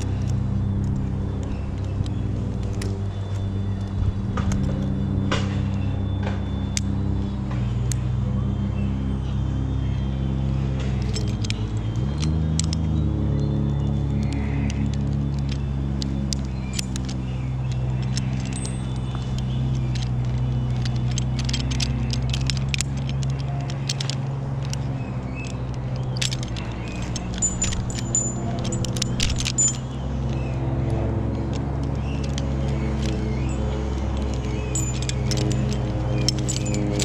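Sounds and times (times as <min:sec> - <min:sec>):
engine droning: 0:00.0 - 0:37.0
metal hardware clinking: 0:10.5 - 0:37.0.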